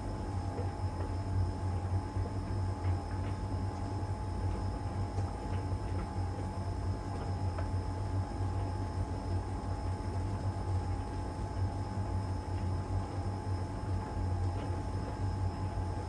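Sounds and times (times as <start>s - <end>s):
light ticks from tumbling drum: 0.1s - 8.8s.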